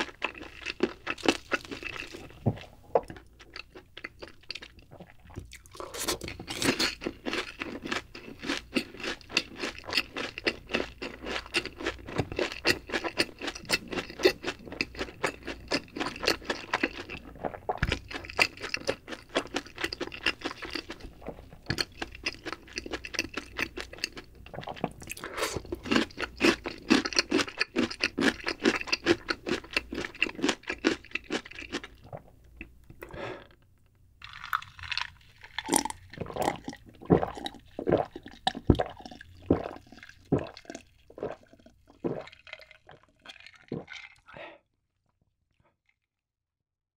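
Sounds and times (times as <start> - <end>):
crunchy chewing: 0.0 - 33.2, 34.2 - 44.3
sipping drink: 34.3 - 42.4.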